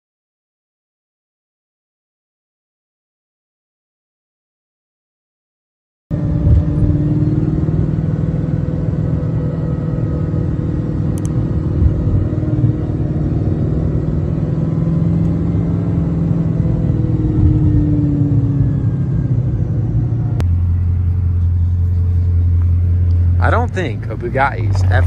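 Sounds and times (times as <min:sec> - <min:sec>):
car engine rumble from inside cabin: 0:06.1 - 0:25.0.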